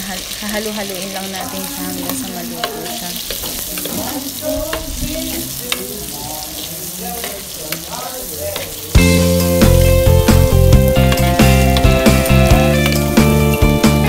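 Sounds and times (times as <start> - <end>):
meat sizzling in hot oil: 0.0 - 14.0
loud music: 9.0 - 14.0.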